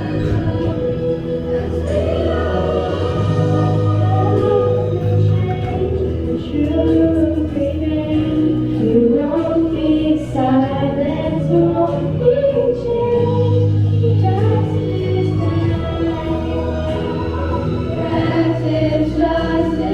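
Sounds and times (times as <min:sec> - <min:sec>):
choir of young voices singing: 0:00.0 - 0:19.9
low musical accompaniment: 0:00.0 - 0:19.9.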